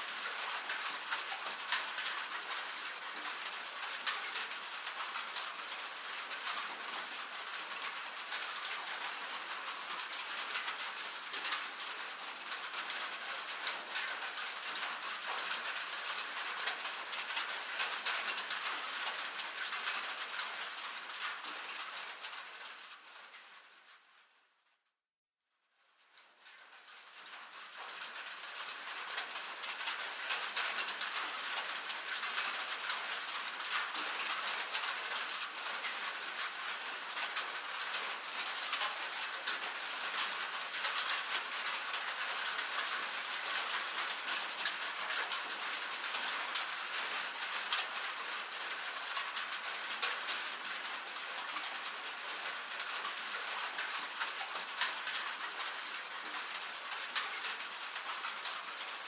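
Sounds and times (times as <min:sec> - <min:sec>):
rain on a metal roof: 0:00.0 - 0:24.8, 0:25.8 - 0:59.0.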